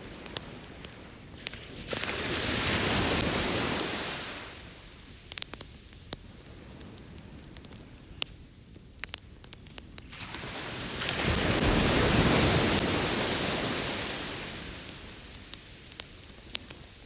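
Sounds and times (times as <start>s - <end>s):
campfire crackling and popping: 0.0s - 17.0s
ocean wave washing in: 10.2s - 15.0s.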